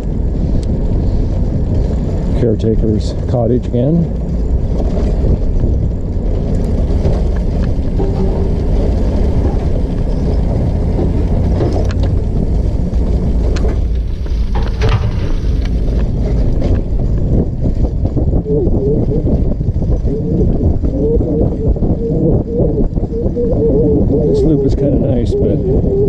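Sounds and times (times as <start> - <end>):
trike clicks and rattles: 0.0 - 18.4
road and wind noise: 0.0 - 26.0.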